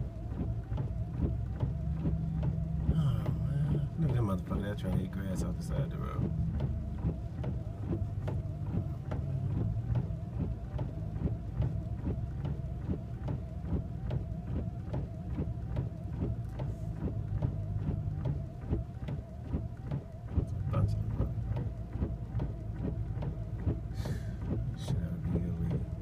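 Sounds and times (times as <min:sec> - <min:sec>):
vehicle engine humming: 0:00.0 - 0:26.0
short irregular clicks: 0:00.3 - 0:26.0.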